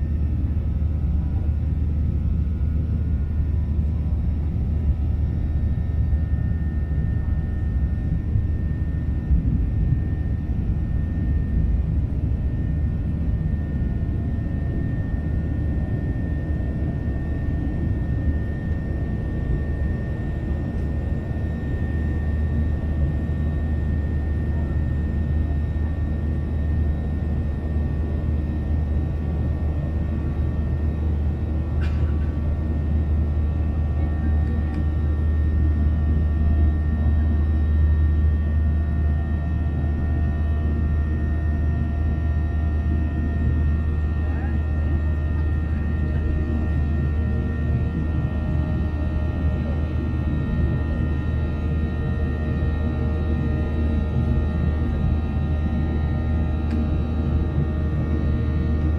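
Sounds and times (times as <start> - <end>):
jet engines rumbling in cabin: 0.0 - 58.9.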